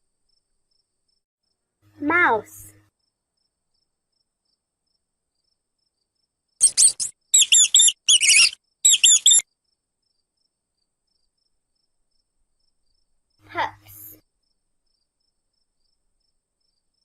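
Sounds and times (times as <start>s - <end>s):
mouse squeaking: 6.6s - 9.4s.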